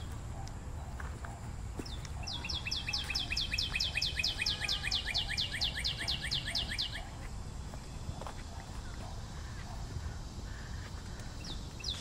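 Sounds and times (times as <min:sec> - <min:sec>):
songbird trilling: 0:01.8 - 0:07.2, 0:10.5 - 0:12.0.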